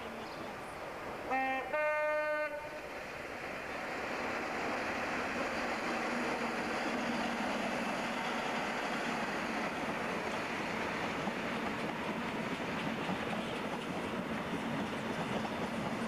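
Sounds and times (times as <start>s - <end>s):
train passing rush: 0.0s - 16.0s
train two-tone horn: 1.3s - 2.9s.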